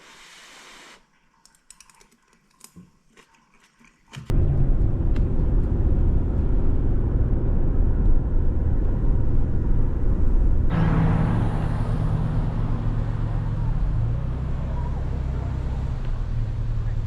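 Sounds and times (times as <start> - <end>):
car road and engine rumble: 4.3 - 17.0.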